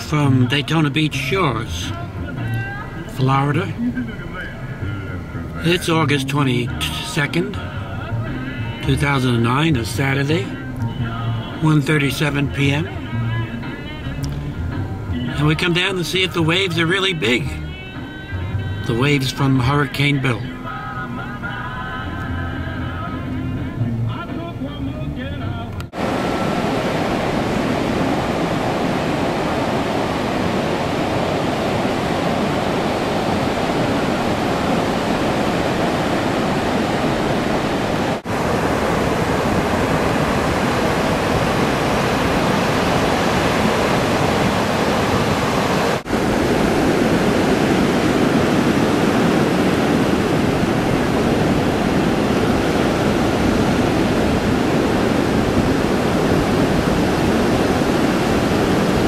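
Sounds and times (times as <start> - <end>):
ocean surf breaking: 0.0 - 10.6, 25.9 - 59.0.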